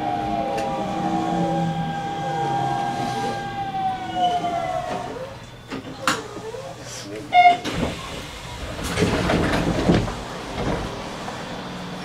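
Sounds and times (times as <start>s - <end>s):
train rumble from inside: 0.0s - 12.0s
wheel clatter over rails: 7.6s - 11.6s.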